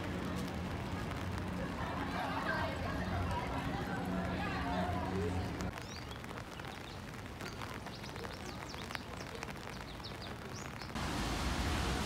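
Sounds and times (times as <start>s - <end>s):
small birds chirping: 5.7s - 11.0s.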